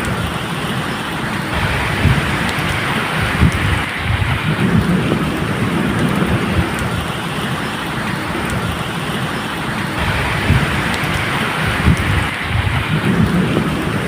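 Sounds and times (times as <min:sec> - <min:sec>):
rainfall hissing: 0:00.0 - 0:14.0
low rumble of thunder: 0:01.5 - 0:07.3, 0:10.0 - 0:14.0.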